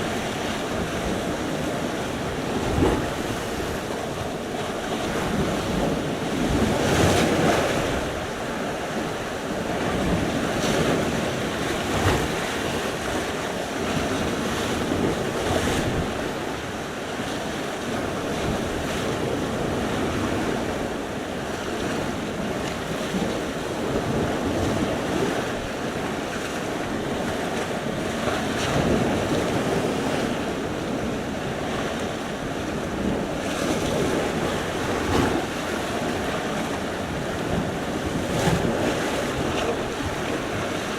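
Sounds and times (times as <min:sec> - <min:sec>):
wind buffeting microphone: 0:00.0 - 0:16.5
sea waves breaking: 0:00.0 - 0:40.9.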